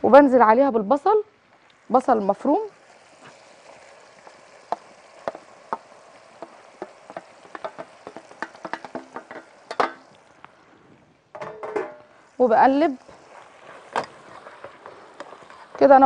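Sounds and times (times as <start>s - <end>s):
food sizzling in hot oil: 0.0s - 10.7s, 11.4s - 16.0s
spatula knocking and scraping pot: 4.7s - 10.1s, 11.4s - 12.1s, 13.1s - 16.0s.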